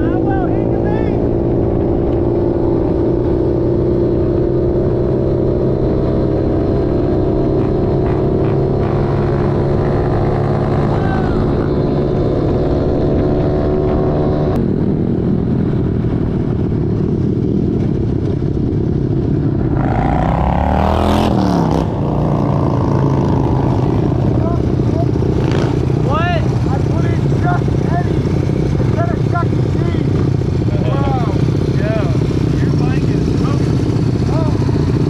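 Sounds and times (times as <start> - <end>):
motorbike engine running: 0.0 - 35.0
road and wind noise: 0.0 - 35.0
vehicle passing by: 19.6 - 29.0.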